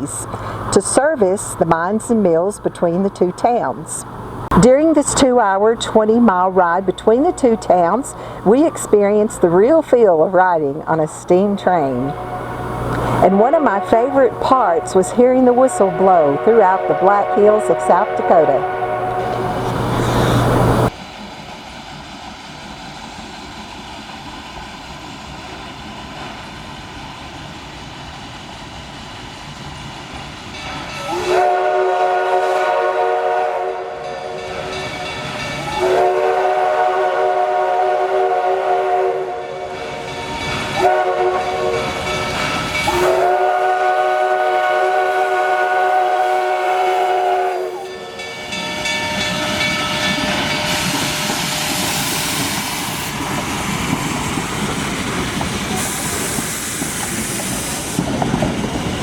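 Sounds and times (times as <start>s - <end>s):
steady train noise: 0.0s - 59.0s
steam locomotive whistle blasts: 11.8s - 21.0s, 30.7s - 53.1s, 55.7s - 58.0s.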